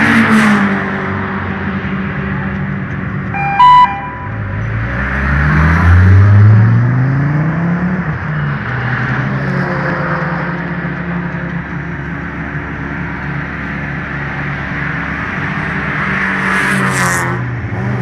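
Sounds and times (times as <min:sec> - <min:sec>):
car horn toot: 0:03.3 - 0:04.4
car engine accelerating hard: 0:04.6 - 0:08.2.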